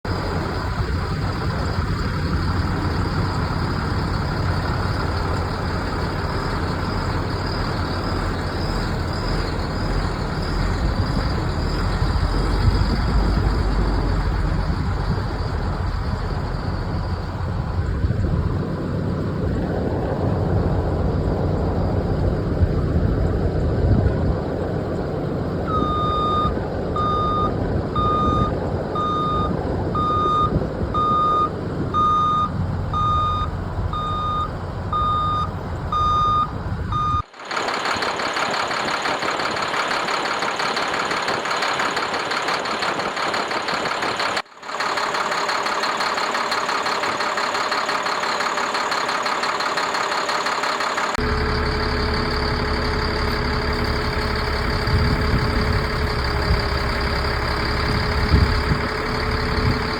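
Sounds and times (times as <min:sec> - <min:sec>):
diesel engine running: 0:00.0 - 0:59.9
reversing alarm beeping: 0:25.7 - 0:37.3.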